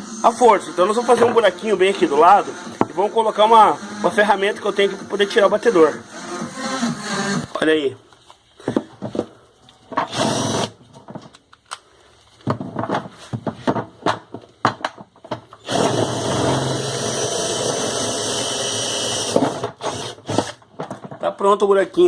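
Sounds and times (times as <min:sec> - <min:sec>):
power drill boring: 0:00.0 - 0:07.6, 0:10.0 - 0:10.8, 0:15.6 - 0:20.6.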